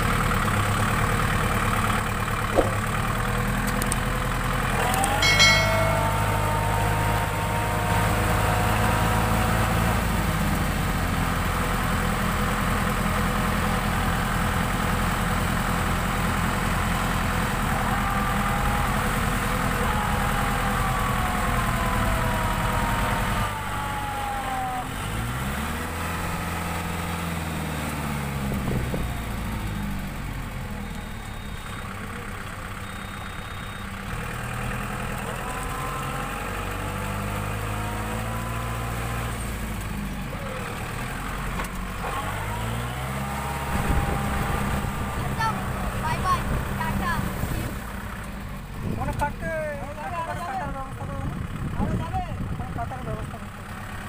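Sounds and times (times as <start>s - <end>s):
diesel tractor engine running: 0.0s - 54.0s
high-pitched tone: 4.8s - 9.6s.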